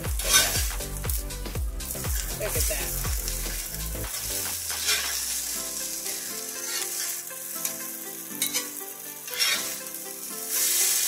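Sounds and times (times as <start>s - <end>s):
omelette sizzling in pan: 0.0s - 11.0s
metal spatula scraping pan: 0.2s - 0.6s, 3.5s - 10.0s.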